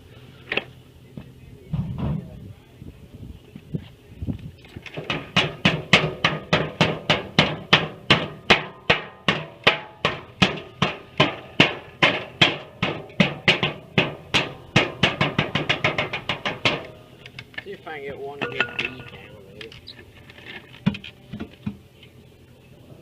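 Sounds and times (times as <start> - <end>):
hammer striking metal: 5.0 - 17.0, 18.4 - 19.3.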